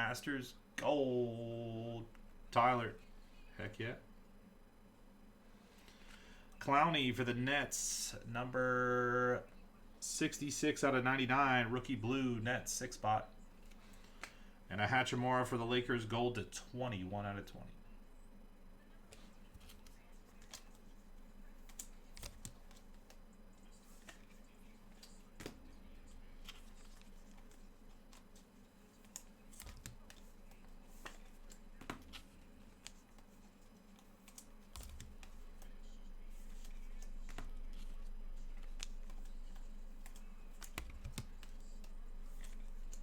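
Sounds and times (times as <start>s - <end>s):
steady low hum: 0.0s - 43.0s
hands clicking and tapping at desk: 21.6s - 25.7s, 26.5s - 43.0s.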